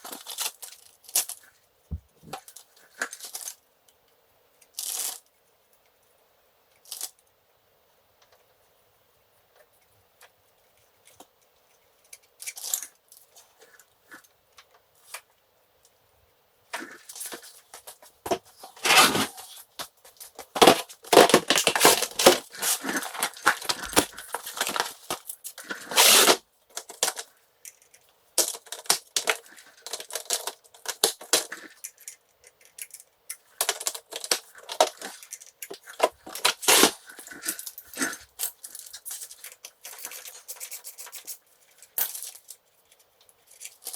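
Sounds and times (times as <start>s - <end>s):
tools and metal parts clicking: 26.8s - 36.5s, 37.2s - 43.9s.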